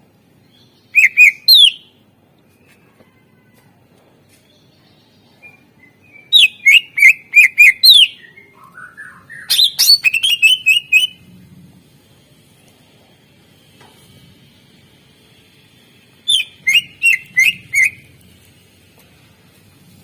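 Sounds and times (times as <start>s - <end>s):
bird singing whistled notes: 0.5s - 1.9s, 5.3s - 11.2s, 16.3s - 18.1s.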